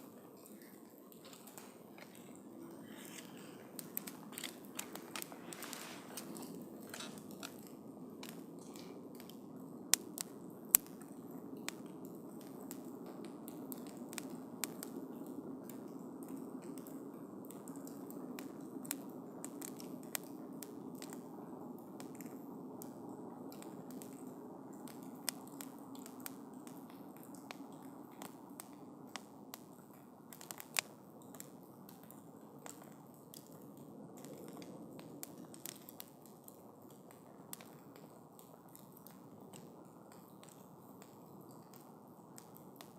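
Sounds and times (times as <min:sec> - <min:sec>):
fire popping and crackling: 0:00.6 - 0:42.9
campfire flames rushing: 0:01.2 - 0:11.1, 0:34.2 - 0:39.0.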